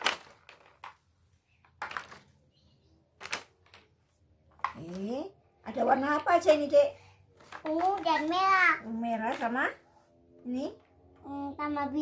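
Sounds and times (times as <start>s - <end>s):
plastic blocks clicking into holes: 0.0s - 1.0s, 1.6s - 2.3s, 3.2s - 5.0s.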